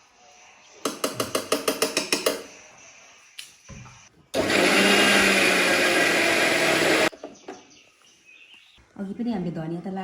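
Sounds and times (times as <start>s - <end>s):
electric blender whirring: 4.4s - 7.1s.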